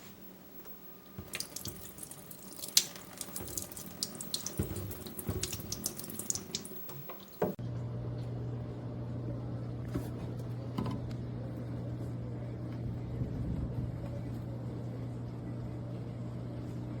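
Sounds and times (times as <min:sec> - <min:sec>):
water running and splashing: 0:01.1 - 0:07.6
steady low hum: 0:07.5 - 0:17.0.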